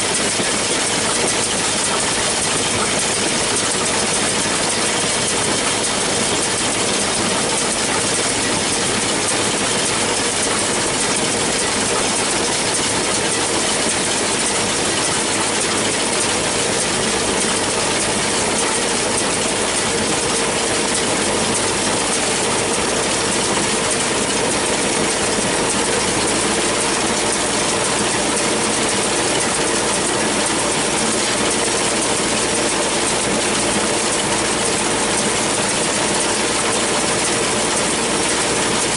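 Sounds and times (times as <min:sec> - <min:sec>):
baler mechanical rattling: 0:00.0 - 0:38.9
tractor diesel engine running: 0:00.0 - 0:38.9.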